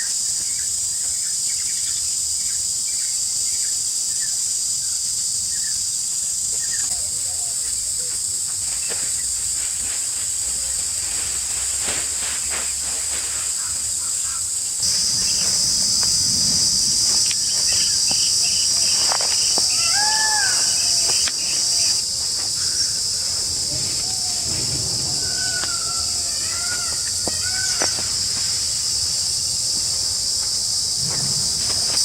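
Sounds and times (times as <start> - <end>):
insect chorus buzzing: 0.0 - 32.0
bird call: 17.6 - 28.6.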